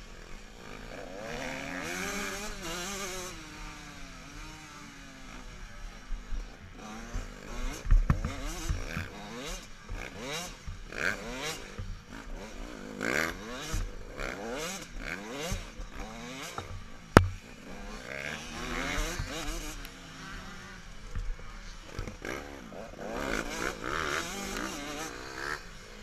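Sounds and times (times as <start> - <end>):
motocross bikes revving: 0.0 - 26.0
sharp knock: 17.2 - 17.4.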